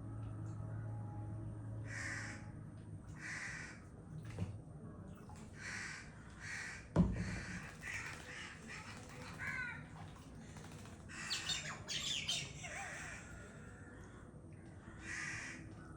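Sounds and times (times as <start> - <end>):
crows squawking: 3.2 - 3.8, 5.6 - 9.9, 11.1 - 13.7, 15.0 - 15.6.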